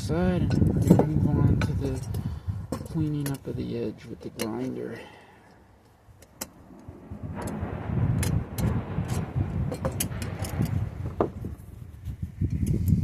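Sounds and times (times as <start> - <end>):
uneven low rumble: 6.4 - 13.0.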